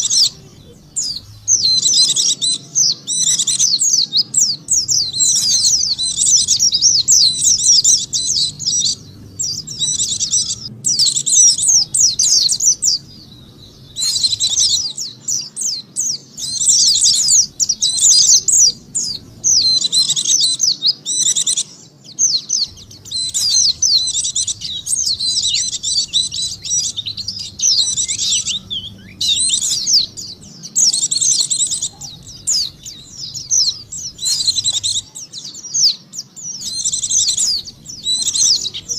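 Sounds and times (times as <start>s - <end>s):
bird twittering song: 0.0s - 38.9s.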